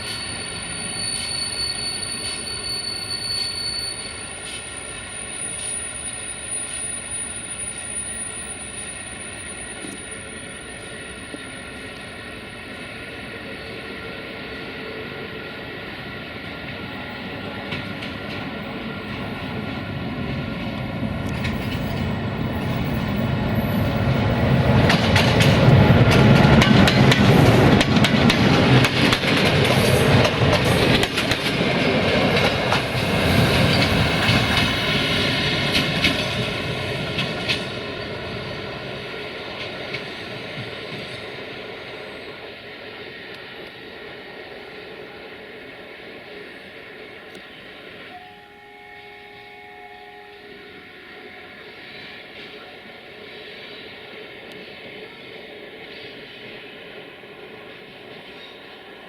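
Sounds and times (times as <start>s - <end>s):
train passing on rails: 0.0s - 59.0s
wheels clacking over rail joints: 23.9s - 33.0s.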